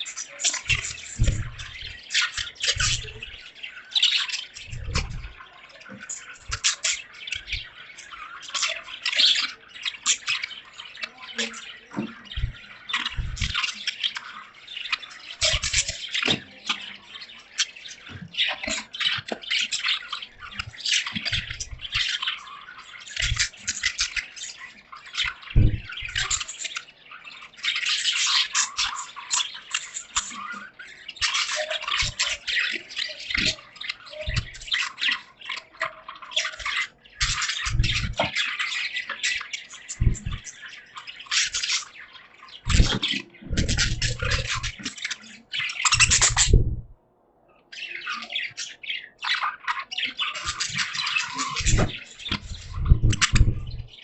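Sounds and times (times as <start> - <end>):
budgerigars chirping: 0.0 - 46.9, 47.7 - 54.0
short low thumps: 46.0 - 47.0, 52.6 - 53.9.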